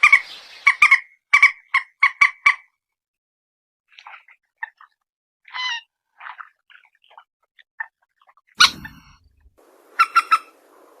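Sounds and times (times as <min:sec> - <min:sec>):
harsh bird calls: 0:08.6 - 0:09.2
faint hiss: 0:08.6 - 0:11.0.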